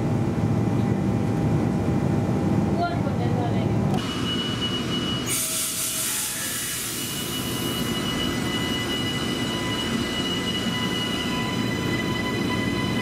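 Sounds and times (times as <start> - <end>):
train low rumble: 0.0 - 13.0
train wheels squealing: 4.0 - 13.0.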